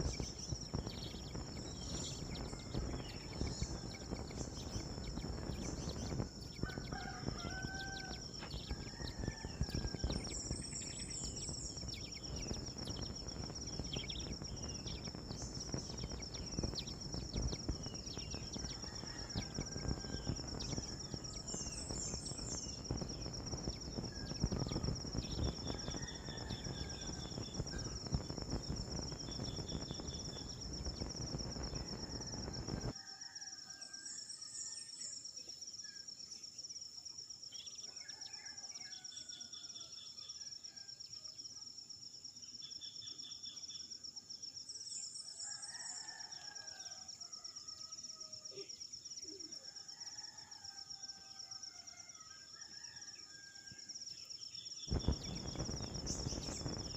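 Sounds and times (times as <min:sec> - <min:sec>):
insect pulsing: 0:00.0 - 0:33.4, 0:54.6 - 0:56.9
high-pitched insect trill: 0:00.0 - 0:56.9.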